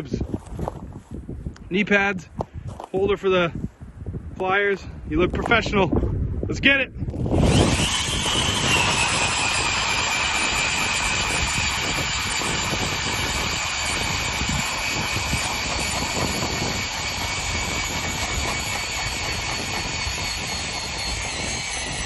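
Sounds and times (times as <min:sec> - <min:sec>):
ice auger drilling: 0:07.1 - 0:22.0.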